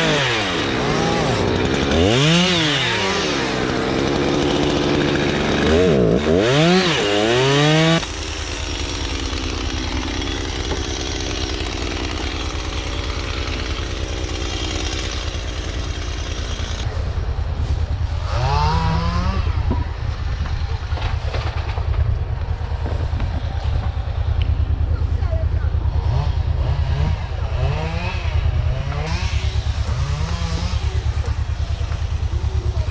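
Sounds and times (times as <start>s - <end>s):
chainsaw revving: 0.0s - 17.0s, 18.1s - 32.9s
engine running with uneven pulse: 0.0s - 32.9s.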